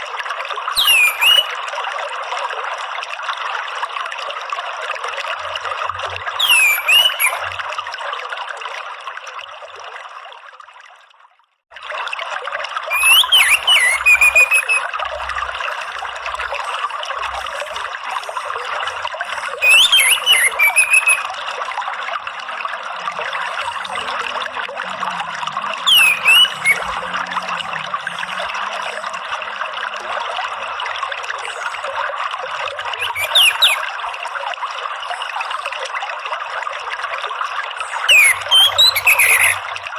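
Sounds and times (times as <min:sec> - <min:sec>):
trickling running water: 0:00.0 - 0:39.9
bird call with trill: 0:00.8 - 0:01.5, 0:06.4 - 0:07.5, 0:12.9 - 0:14.9, 0:19.6 - 0:21.2, 0:25.8 - 0:27.0, 0:33.0 - 0:33.8, 0:38.0 - 0:39.6.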